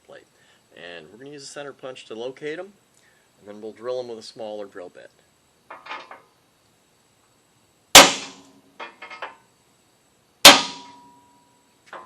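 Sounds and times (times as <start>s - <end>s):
hammer striking metal punch: 8.0s - 9.2s, 10.4s - 11.2s
faint metallic ringing: 10.4s - 12.0s.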